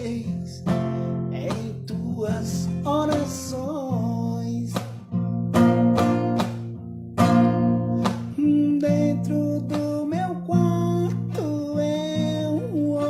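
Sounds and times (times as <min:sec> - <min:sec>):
person singing: 0:00.0 - 0:04.9, 0:07.8 - 0:13.0
acoustic guitar strumming: 0:00.0 - 0:13.0.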